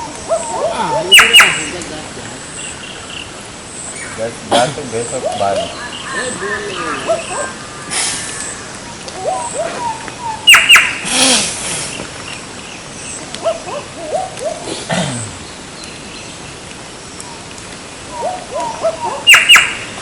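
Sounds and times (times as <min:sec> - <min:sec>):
sharp high bird calls: 0:00.0 - 0:01.8, 0:05.2 - 0:14.7, 0:18.1 - 0:20.0
bird chirping: 0:00.0 - 0:11.1, 0:18.1 - 0:20.0.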